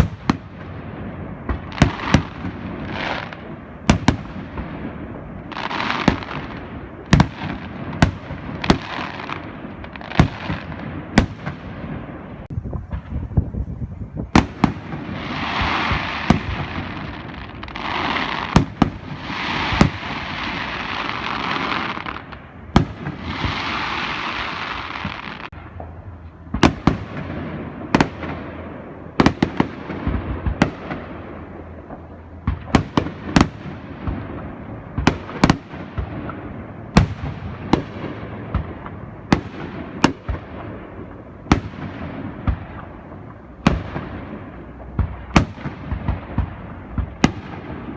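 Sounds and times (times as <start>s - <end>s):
fireworks bangs echoing: 0.0s - 47.9s
fireworks hissing: 14.7s - 25.6s.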